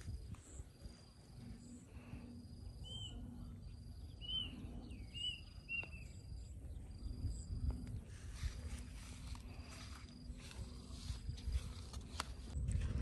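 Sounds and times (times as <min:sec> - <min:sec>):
low rumble: 0:00.0 - 0:13.0
bird chirping: 0:02.8 - 0:07.6.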